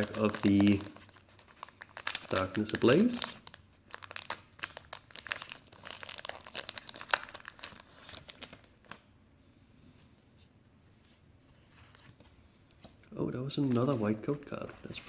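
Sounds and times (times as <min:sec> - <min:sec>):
foil wrapper crackling: 0:00.0 - 0:09.1.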